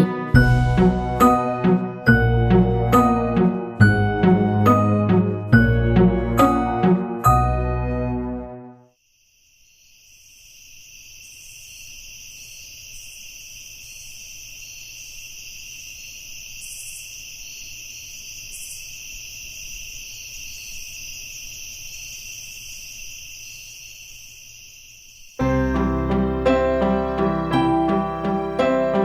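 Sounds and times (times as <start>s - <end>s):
crickets chirping: 8.9s - 29.0s.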